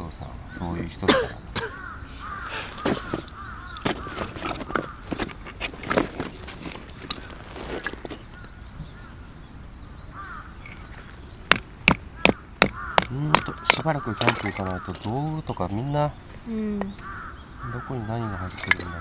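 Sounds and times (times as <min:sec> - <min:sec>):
bird calling: 0:00.0 - 0:19.0
sharp clicks and knocks: 0:11.5 - 0:15.2.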